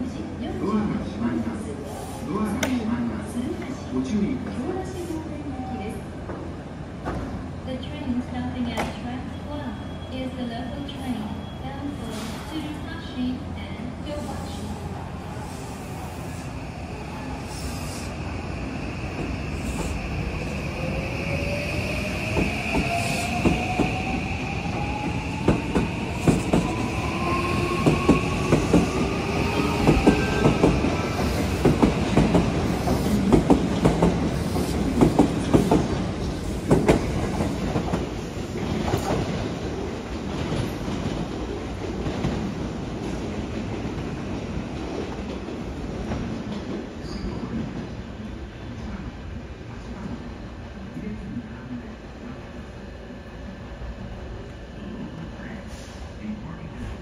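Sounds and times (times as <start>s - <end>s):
train wheels clattering on rails: 29.8s - 39.5s.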